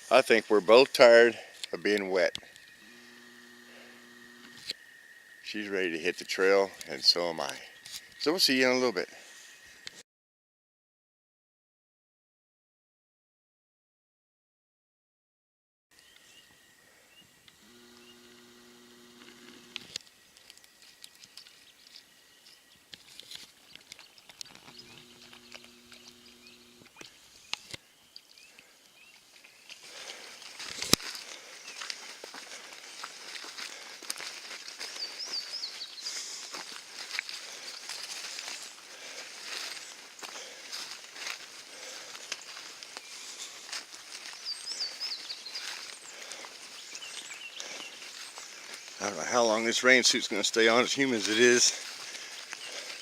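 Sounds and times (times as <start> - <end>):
faint low hum: 2.5 - 4.8, 17.4 - 20.0, 24.5 - 27.0
songbird warbling: 24.6 - 27.7.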